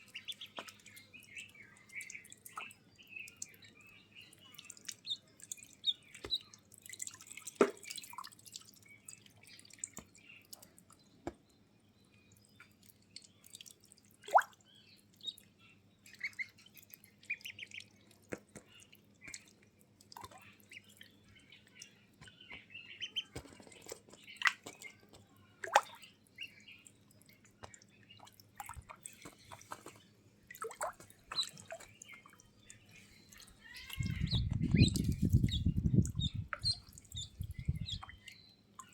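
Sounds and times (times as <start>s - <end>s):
bird chirps: 0.0s - 6.6s, 30.8s - 38.9s
water splashing and dripping: 0.0s - 11.4s, 12.3s - 38.9s.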